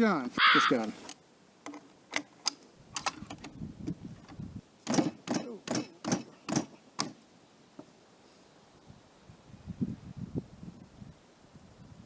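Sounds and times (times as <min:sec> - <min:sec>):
sharp knocks on rifle bolt: 0:04.8 - 0:07.2.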